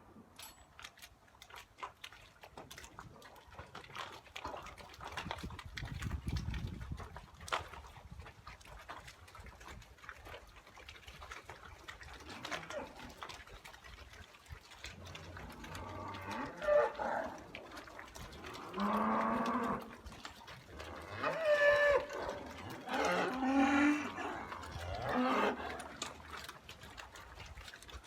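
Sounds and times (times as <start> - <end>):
cows mooing: 15.2 - 17.4, 18.4 - 20.0, 20.8 - 26.1.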